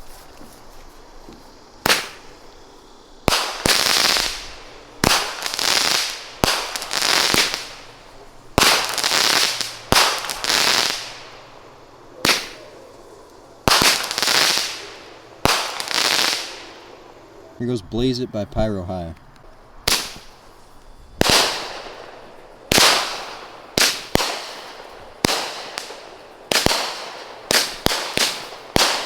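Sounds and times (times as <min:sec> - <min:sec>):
firework bangs: 0:00.0 - 0:17.4, 0:19.8 - 0:29.0
firework hissing: 0:00.0 - 0:17.6, 0:19.4 - 0:29.0.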